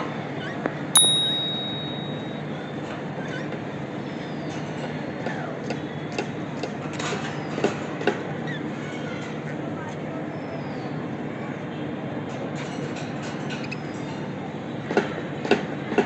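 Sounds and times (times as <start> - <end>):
small metal bell ding: 1.0 - 2.5.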